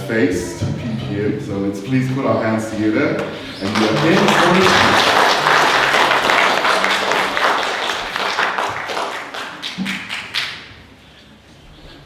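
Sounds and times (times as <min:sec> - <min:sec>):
congregation applauding: 0:03.5 - 0:11.0.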